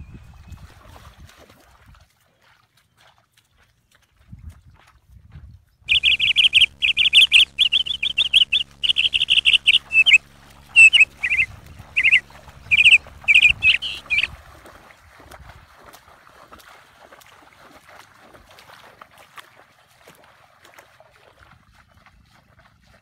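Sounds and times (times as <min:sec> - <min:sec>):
bird chirping loudly: 0:05.9 - 0:14.3
faint steady hum: 0:05.9 - 0:14.4.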